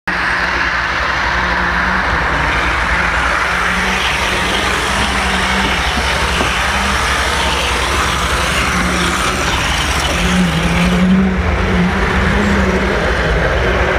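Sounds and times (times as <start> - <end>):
model train wheels on rails: 0.1 - 13.9.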